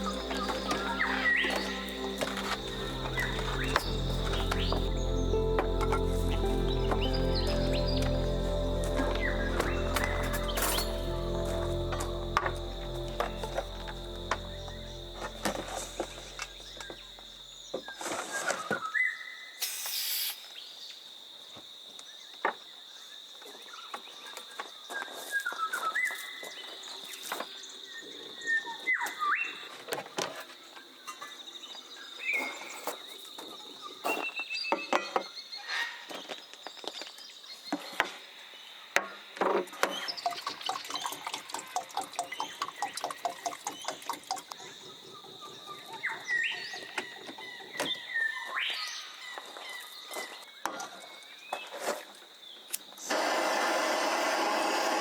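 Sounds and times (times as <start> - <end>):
whistled bird calls: 0.0 - 8.3
background music: 0.0 - 17.5
high-pitched insect drone: 0.0 - 17.6.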